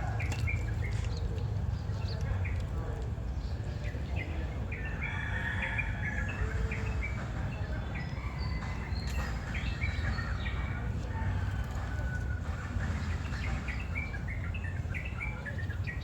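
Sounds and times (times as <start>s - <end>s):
small birds chirping: 0.0s - 16.0s
low outdoor rumble: 5.9s - 16.0s.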